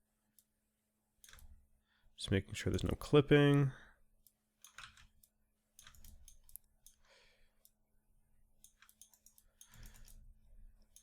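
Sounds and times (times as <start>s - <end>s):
computer mouse and keyboard clicks: 1.2s - 1.6s, 4.2s - 7.0s, 8.6s - 11.0s.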